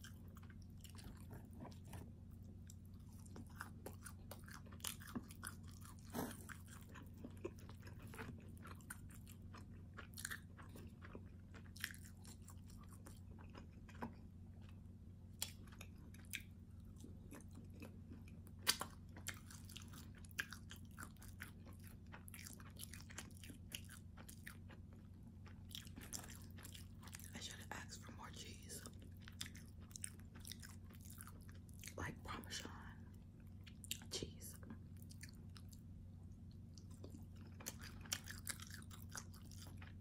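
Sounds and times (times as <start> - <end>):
biting and chewing crunchy crust: 0.0 - 40.0
steady low hum: 0.0 - 40.0.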